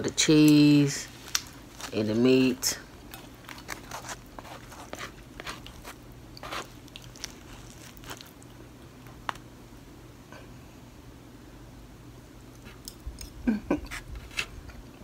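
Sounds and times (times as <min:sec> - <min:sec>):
faint steady hum: 0:00.0 - 0:15.0
wet chewing and mouth clicks: 0:02.9 - 0:09.4.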